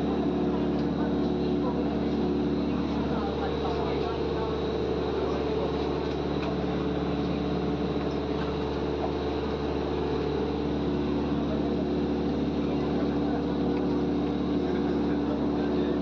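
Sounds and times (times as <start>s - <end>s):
airplane drone with high whine: 0.0s - 16.0s.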